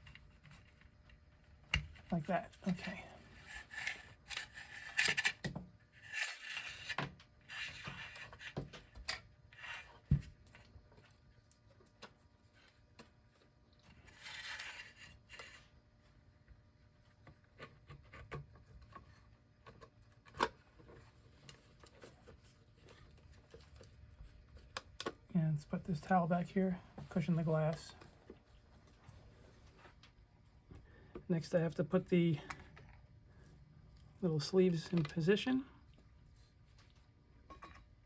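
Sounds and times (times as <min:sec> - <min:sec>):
rubbing and scraping wood: 0:02.1 - 0:08.7.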